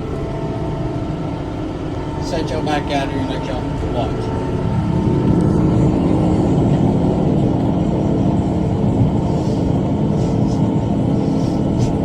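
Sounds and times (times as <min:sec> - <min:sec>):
tractor engine drone: 0:00.0 - 0:12.0.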